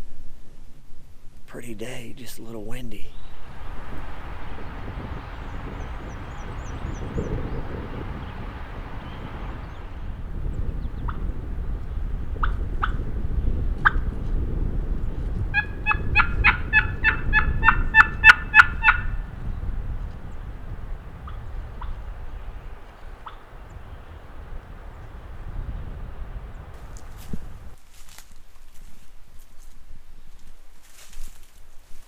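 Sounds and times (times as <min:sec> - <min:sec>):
wind rumble on microphone: 0:03.3 - 0:27.8
turkey clucks: 0:03.5 - 0:27.8
turkey yelps: 0:03.6 - 0:13.0, 0:15.0 - 0:27.8.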